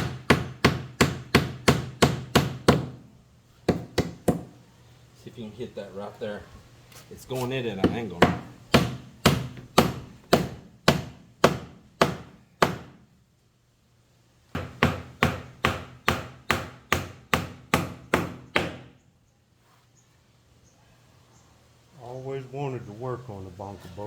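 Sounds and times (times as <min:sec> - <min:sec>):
hammer driving a nail into wood: 0:00.0 - 0:03.0, 0:03.7 - 0:04.5, 0:07.8 - 0:13.0, 0:14.5 - 0:19.0.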